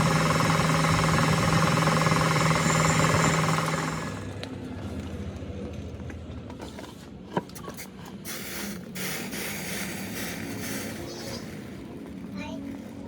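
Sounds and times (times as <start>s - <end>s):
steady low hum: 0.0s - 4.3s
mechanical work noises: 0.0s - 4.5s.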